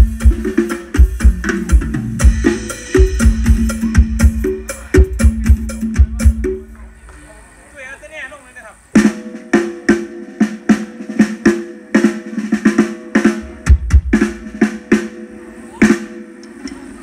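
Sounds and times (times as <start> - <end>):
bass drum kicks: 0.0 - 6.9, 13.4 - 14.6.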